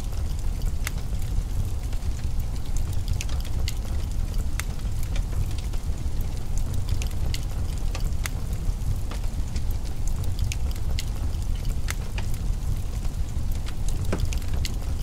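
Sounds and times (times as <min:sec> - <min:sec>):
fire crackling and popping: 0:00.0 - 0:15.0
fire low rumble: 0:00.0 - 0:15.0.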